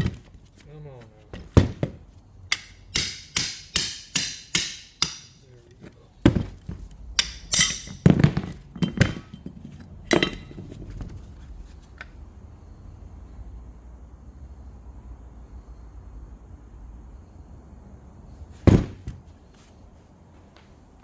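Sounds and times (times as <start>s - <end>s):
hammer striking metal: 2.5s - 5.5s, 7.1s - 9.4s, 10.1s - 10.6s.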